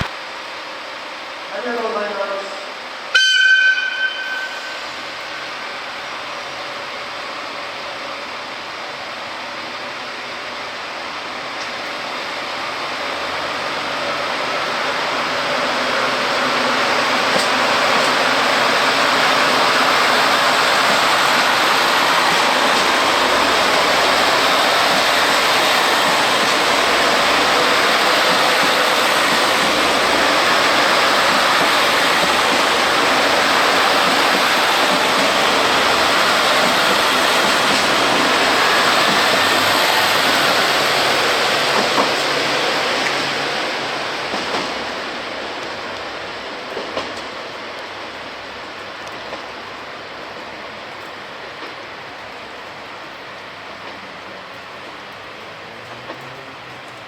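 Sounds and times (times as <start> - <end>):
train rushing past: 0.0 - 57.0
train wheels clicking: 11.4 - 57.0.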